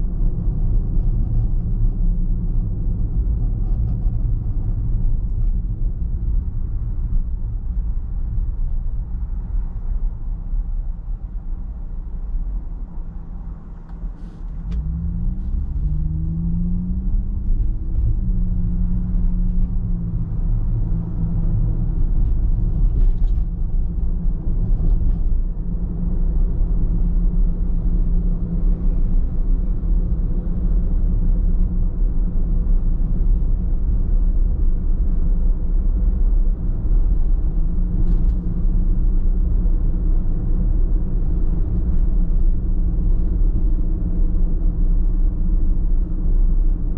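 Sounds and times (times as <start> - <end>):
car engine and road rumble: 0.0 - 46.9.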